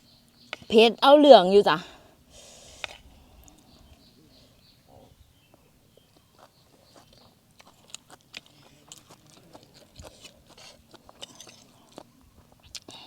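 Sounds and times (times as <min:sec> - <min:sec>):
chewing crunchy food: 0:06.4 - 0:13.0.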